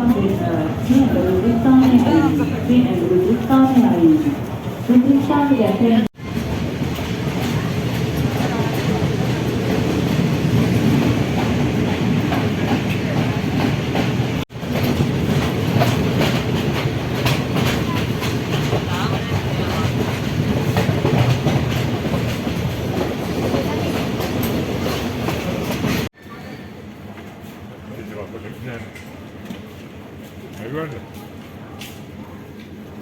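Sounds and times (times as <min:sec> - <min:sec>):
train running noise: 0:00.0 - 0:33.0
train wheels clicking over rail joints: 0:06.3 - 0:26.1.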